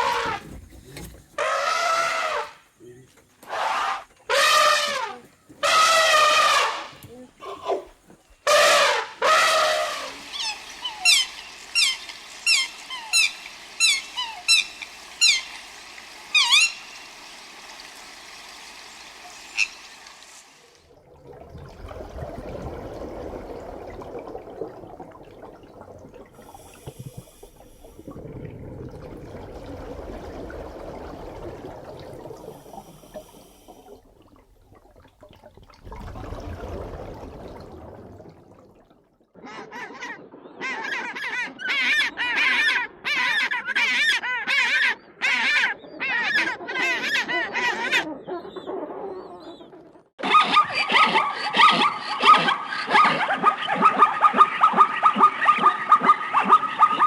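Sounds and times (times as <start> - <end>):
waterfowl calling: 1.4 - 2.7, 3.4 - 20.1.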